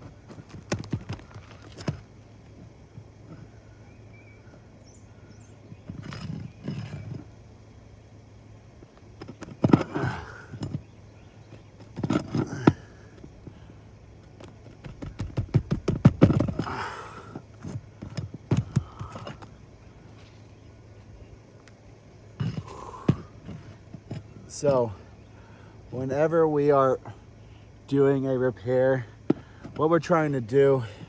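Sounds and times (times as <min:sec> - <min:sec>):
roof shingles scraping and crackling: 0:00.0 - 0:02.8, 0:09.0 - 0:20.5
low hum: 0:00.0 - 0:31.0.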